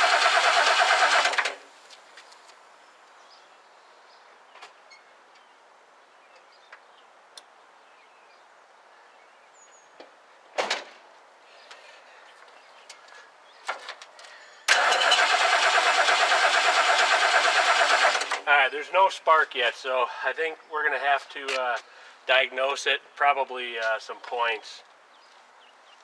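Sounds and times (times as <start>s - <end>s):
starter motor cranking engine: 0.0s - 1.6s, 14.7s - 18.4s.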